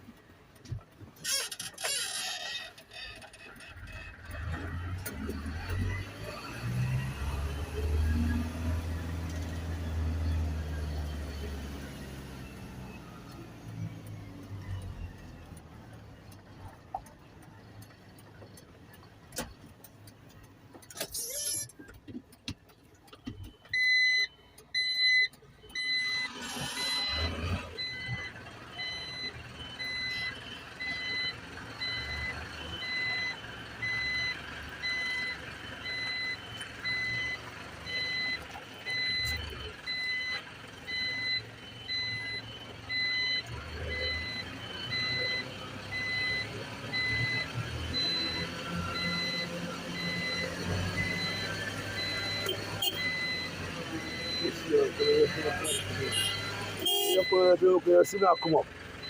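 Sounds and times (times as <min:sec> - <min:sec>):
truck engine running: 0:21.8 - 0:59.0
reversing alarm beeping: 0:23.3 - 0:58.6.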